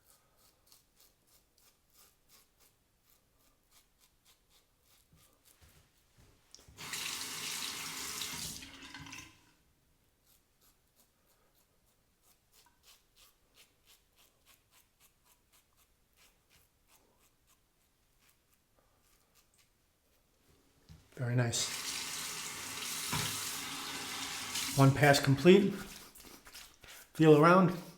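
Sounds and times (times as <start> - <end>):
razor scraping stubble: 0.0 - 6.1, 10.2 - 20.2, 21.8 - 27.9
water tap running: 6.6 - 9.5, 21.5 - 26.0.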